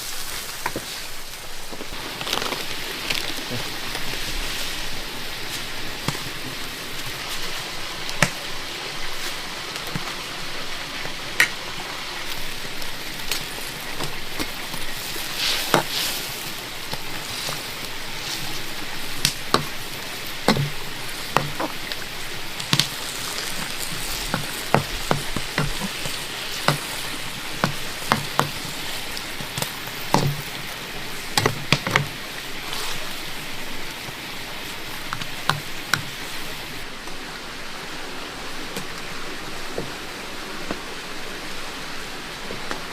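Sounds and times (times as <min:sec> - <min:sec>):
heavy rain hissing: 0:00.0 - 0:42.9
sharp knocks and taps: 0:20.5 - 0:21.8, 0:23.6 - 0:26.9, 0:27.6 - 0:28.6, 0:29.4 - 0:30.5, 0:31.4 - 0:32.1.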